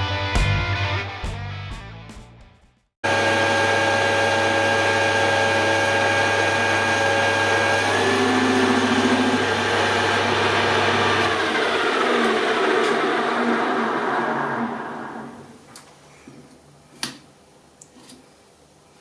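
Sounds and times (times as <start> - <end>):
background music: 0.0 - 2.8
metal lathe motor hum and whine: 3.1 - 15.6.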